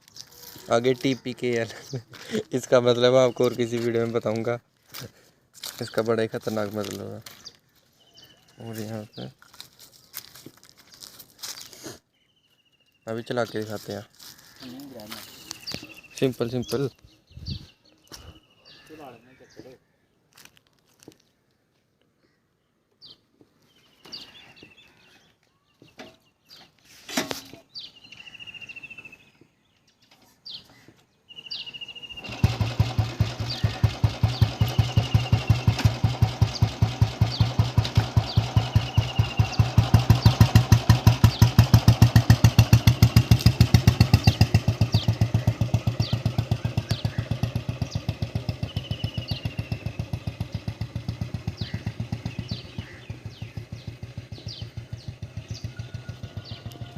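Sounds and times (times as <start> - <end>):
motorcycle engine starting and idling: 31.5 - 56.9.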